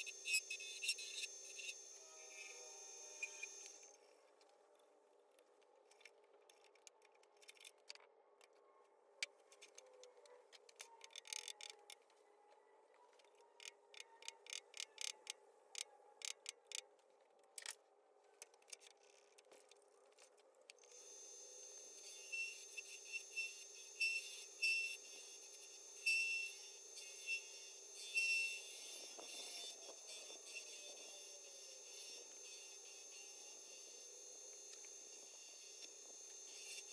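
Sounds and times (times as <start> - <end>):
small clicks and ticks: 5.3 - 8.6, 9.2 - 12.2, 13.2 - 17.8, 18.4 - 21.0.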